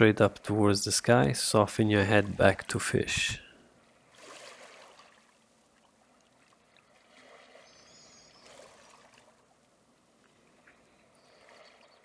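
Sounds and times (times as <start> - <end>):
faint background hiss: 0.0 - 4.2.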